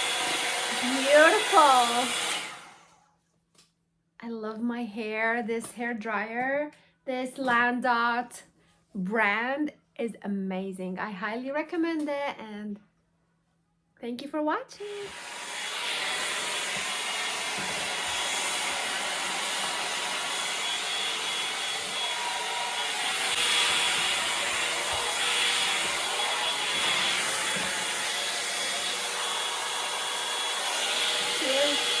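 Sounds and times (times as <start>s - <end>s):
hair dryer running: 0.0s - 3.0s, 14.8s - 32.0s.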